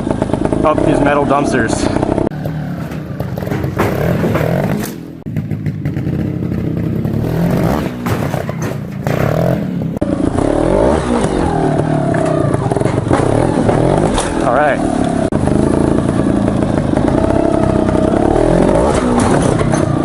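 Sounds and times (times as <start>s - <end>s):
motorcycle engine revving: 0.0s - 20.0s
sharp knocks and scrapes: 2.3s - 5.3s, 7.6s - 9.8s, 11.0s - 14.5s, 18.8s - 20.0s.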